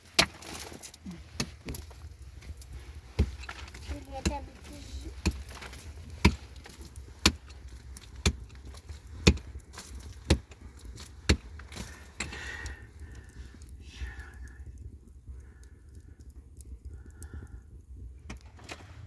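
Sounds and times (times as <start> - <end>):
hand tool striking hard ground: 3.2 - 8.6, 9.2 - 10.6.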